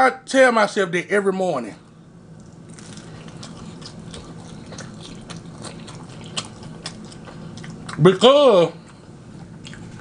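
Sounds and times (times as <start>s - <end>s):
faint steady hum: 0.0s - 10.0s
person chewing: 2.3s - 10.0s.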